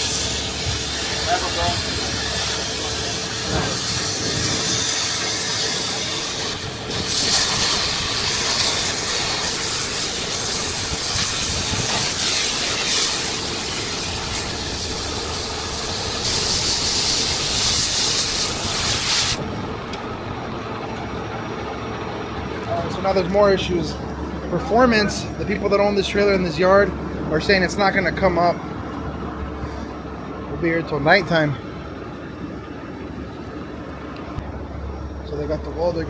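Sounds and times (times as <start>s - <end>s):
pressurised gas hissing: 0.0s - 19.4s
steady low hum: 0.0s - 36.0s.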